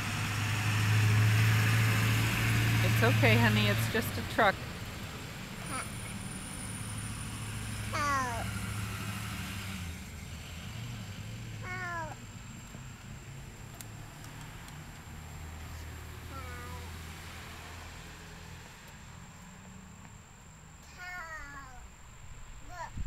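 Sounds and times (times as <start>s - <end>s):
cat meowing: 11.6s - 12.2s.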